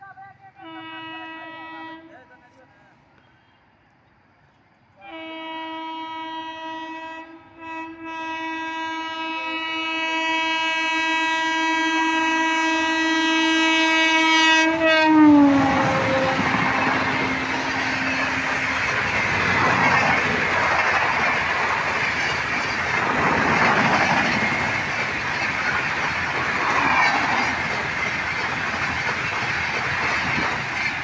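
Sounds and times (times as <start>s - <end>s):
locomotive horn blast: 0.6s - 2.2s, 5.0s - 19.8s
train wheels clattering on rails: 15.5s - 31.0s.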